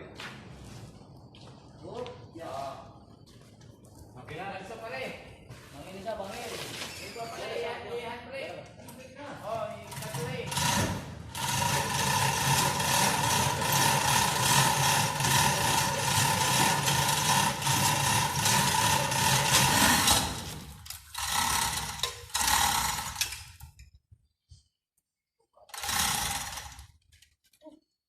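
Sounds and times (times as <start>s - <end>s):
small electric motor whining: 25.7s - 26.9s.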